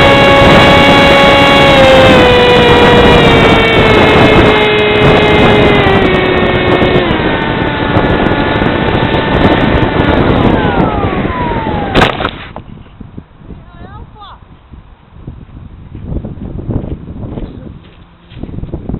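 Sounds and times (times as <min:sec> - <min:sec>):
model aircraft motor whining: 0:00.0 - 0:12.8
wind buffeting microphone: 0:00.0 - 0:18.9.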